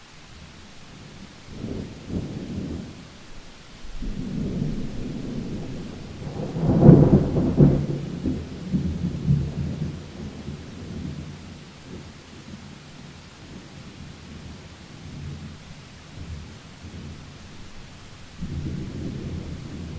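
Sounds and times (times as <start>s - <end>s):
faint hiss of rain: 0.0s - 19.9s
thunder rumbling: 3.9s - 12.1s, 16.2s - 19.9s.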